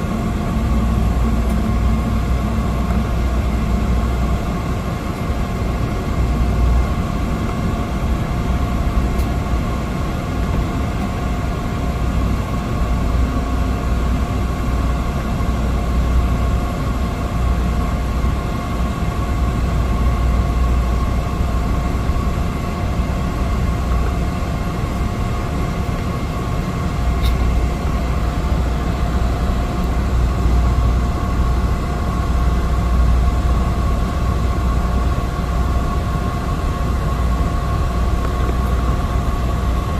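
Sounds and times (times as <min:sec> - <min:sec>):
turboprop engine drone in cabin: 0:00.0 - 0:39.9.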